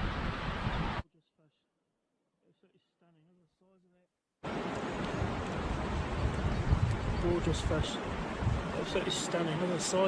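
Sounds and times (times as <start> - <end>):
wind buffeting microphone: 0.0 - 1.0, 4.5 - 9.2
rushing river water: 4.4 - 10.0.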